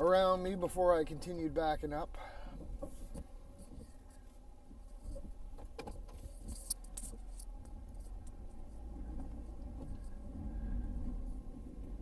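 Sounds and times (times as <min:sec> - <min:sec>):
pickup truck engine running low: 0:07.2 - 0:12.0.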